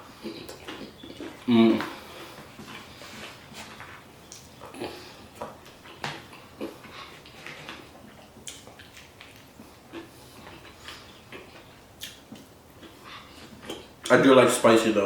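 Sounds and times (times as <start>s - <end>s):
chewing and lip-smacking: 0.0s - 14.1s.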